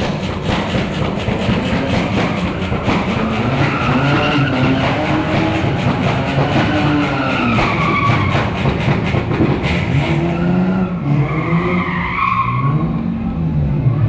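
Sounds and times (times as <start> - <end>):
car engine revving: 0.0 - 14.0
tyres squealing: 2.4 - 8.6.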